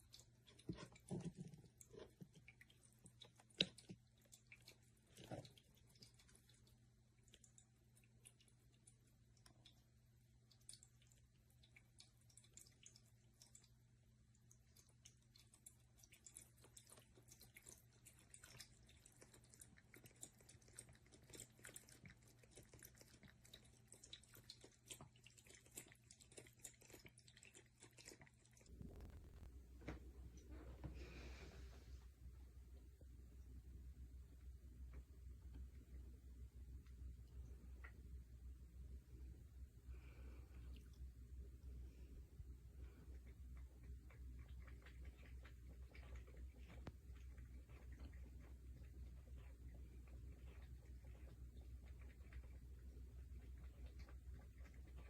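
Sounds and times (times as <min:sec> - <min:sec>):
cat lapping water: 0:00.0 - 0:55.0
low hum: 0:28.6 - 0:55.0.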